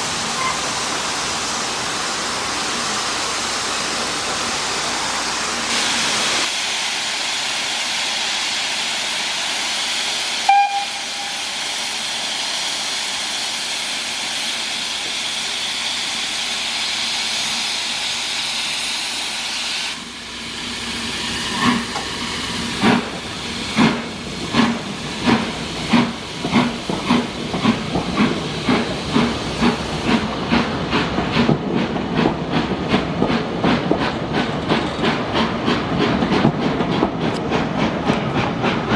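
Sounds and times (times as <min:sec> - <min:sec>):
steam locomotive hissing: 0:00.0 - 0:38.9
short whistle pip: 0:10.4 - 0:11.5.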